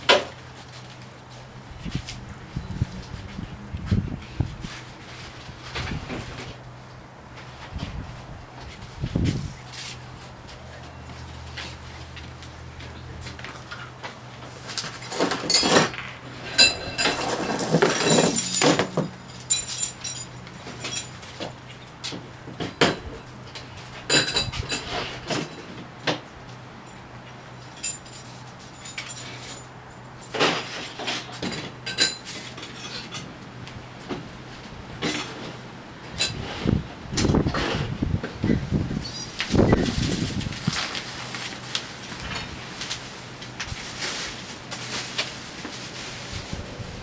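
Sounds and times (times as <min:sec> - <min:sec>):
metal parts clinking and rattling: 0:14.7 - 0:21.6, 0:27.6 - 0:33.2.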